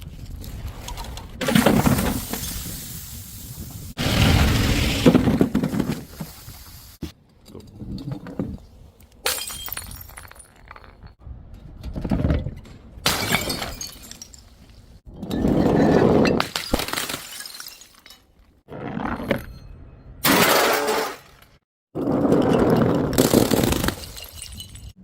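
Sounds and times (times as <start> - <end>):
glass bottles smashing: 9.2 - 11.2, 13.1 - 14.6, 16.2 - 18.4, 23.2 - 25.0.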